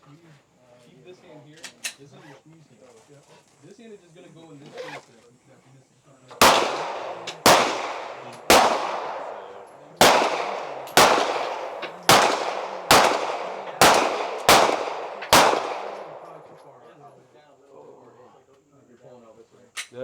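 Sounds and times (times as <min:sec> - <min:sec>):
pistol shots with echo: 0:06.4 - 0:16.9.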